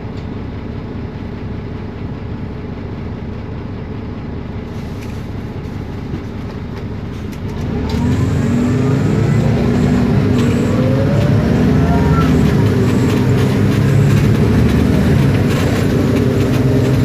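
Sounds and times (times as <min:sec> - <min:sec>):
bus engine drone: 0:00.0 - 0:17.0
gearbox whine: 0:07.5 - 0:17.0.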